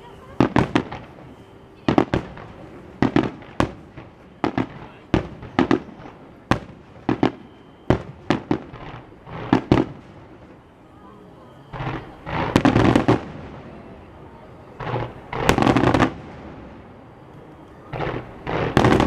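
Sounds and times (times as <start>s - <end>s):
firework shells bursting: 17.9s - 19.0s.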